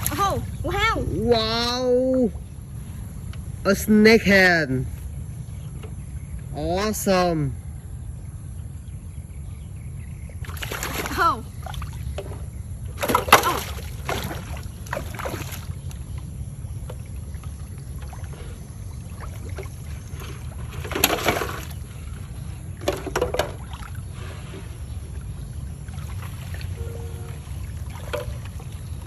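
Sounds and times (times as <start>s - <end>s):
water splashing and sloshing: 0.0s - 3.6s, 10.0s - 29.0s
steady low rumble: 0.0s - 13.0s, 13.8s - 20.8s, 23.6s - 29.0s.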